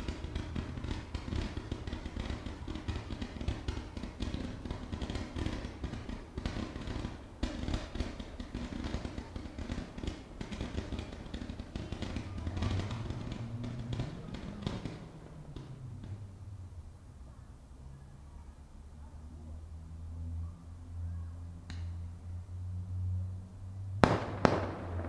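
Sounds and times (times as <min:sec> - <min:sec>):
fireworks popping and crackling: 0:00.0 - 0:16.6, 0:24.0 - 0:25.0.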